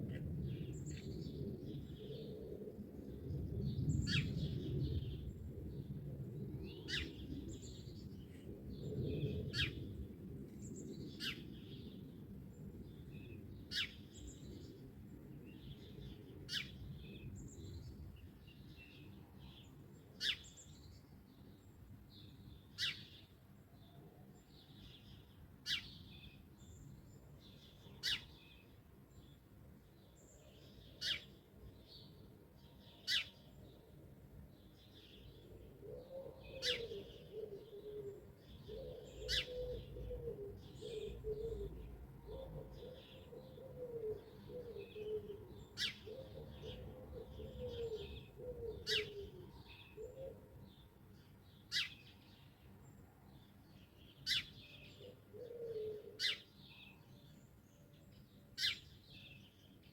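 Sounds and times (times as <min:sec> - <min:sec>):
birds chirping softly: 0:00.0 - 0:59.9.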